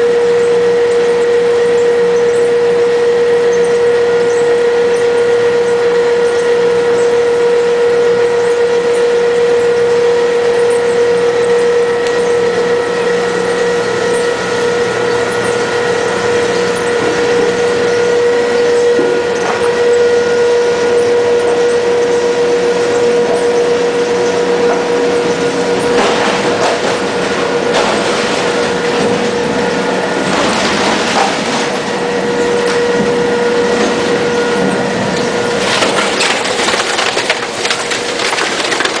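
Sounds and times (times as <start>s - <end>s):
machine motor whine and grinding: 0.0s - 39.0s
crackling crushing: 24.3s - 39.0s.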